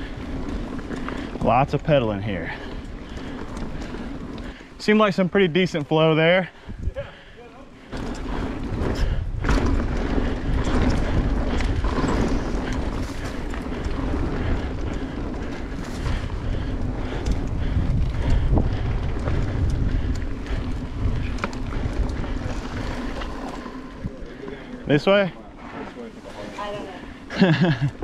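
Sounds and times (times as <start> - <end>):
bike clicks and rattles: 0.0 - 28.0
bike tyre noise: 0.0 - 28.0
wind rumbling on microphone: 6.6 - 7.3, 7.9 - 24.8.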